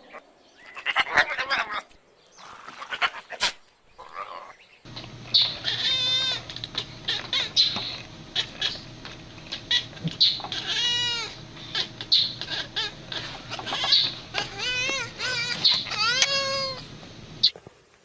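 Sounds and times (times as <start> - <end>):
scattered clicks: 4.9 - 10.7
steady hum: 4.9 - 17.8
animal calling with wavering pitch: 5.2 - 17.5.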